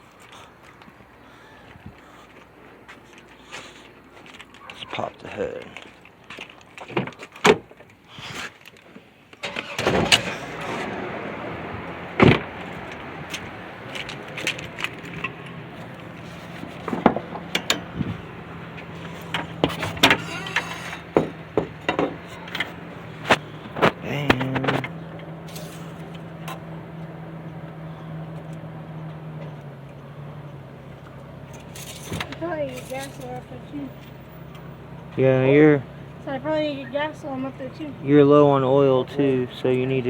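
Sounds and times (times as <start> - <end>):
car engine starting and idling: 9.3 - 40.0
sharp clicks and knocks: 12.2 - 27.1.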